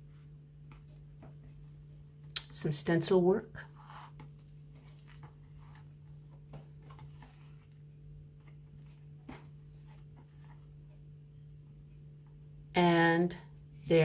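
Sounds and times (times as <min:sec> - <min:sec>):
paper pages rustling: 0:03.8 - 0:07.8.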